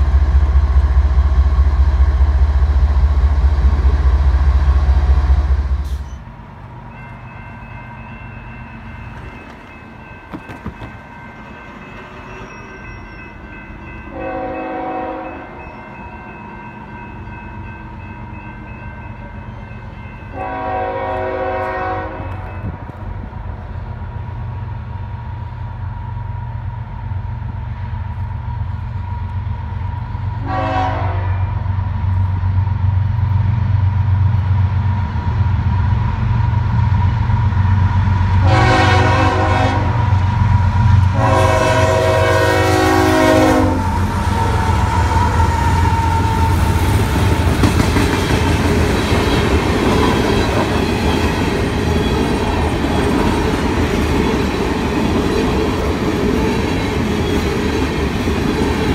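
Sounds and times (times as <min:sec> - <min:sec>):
diesel locomotive rumbling: 0:00.0 - 0:58.9
wheels rushing on rail: 0:00.0 - 0:58.9
train horn blasts: 0:14.1 - 0:15.6, 0:20.2 - 0:22.8, 0:30.4 - 0:31.7, 0:38.4 - 0:40.2, 0:41.1 - 0:46.9.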